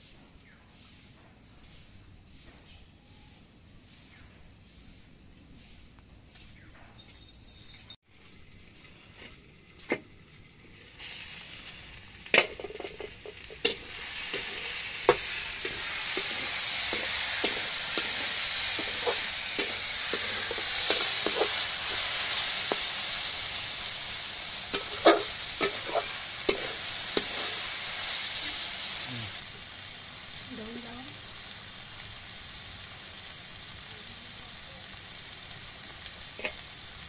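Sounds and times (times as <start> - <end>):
mushrooms sizzling in oil: 8.6 - 37.0.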